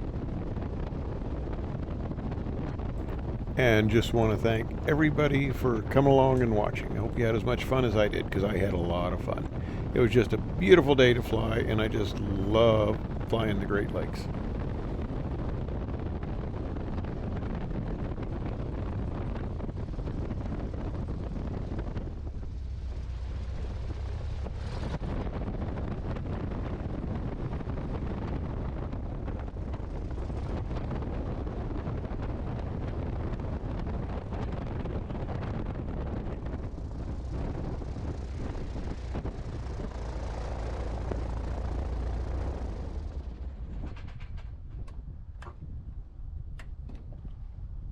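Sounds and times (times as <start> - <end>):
wind rumbling on microphone: 0.0 - 47.9
biplane piston engine running: 36.6 - 45.6.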